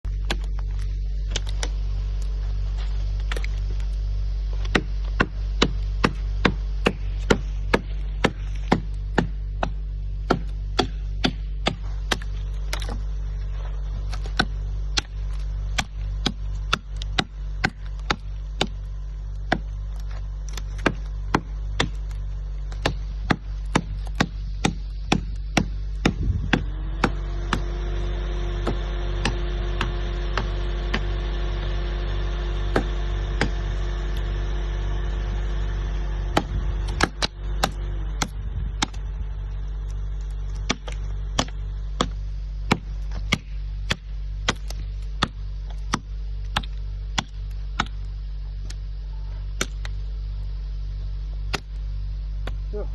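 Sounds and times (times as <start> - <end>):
low hum: 0.0 - 52.9
axe chopping wood: 0.2 - 0.7, 4.6 - 13.0, 14.1 - 18.8, 19.5 - 19.8, 20.5 - 27.8, 28.6 - 31.2, 32.7 - 33.6, 36.3 - 39.0, 40.6 - 48.0, 49.6 - 50.0, 51.5 - 51.8.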